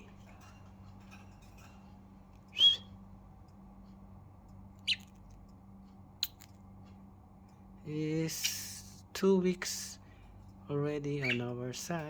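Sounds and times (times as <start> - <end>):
budgerigar chirping: 2.5 - 2.9, 4.8 - 5.2, 11.2 - 11.5.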